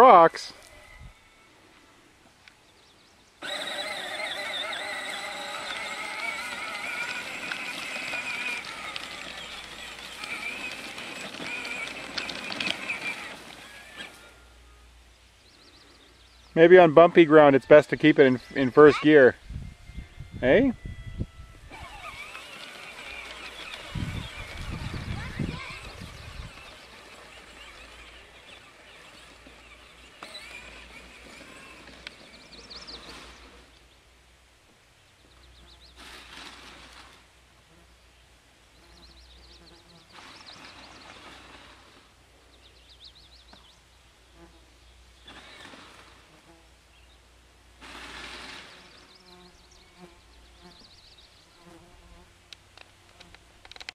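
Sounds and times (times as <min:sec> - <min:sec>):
toy tractor motor whining: 0:00.0 - 0:01.8, 0:03.4 - 0:15.0, 0:16.6 - 0:33.9, 0:35.6 - 0:37.3, 0:38.8 - 0:43.7, 0:45.1 - 0:46.6, 0:47.8 - 0:51.2, 0:52.8 - 0:53.9
clicks and knocks over rocky ground: 0:06.9 - 0:14.2
steady low background noise: 0:27.2 - 0:36.0
small clicks: 0:52.5 - 0:53.9.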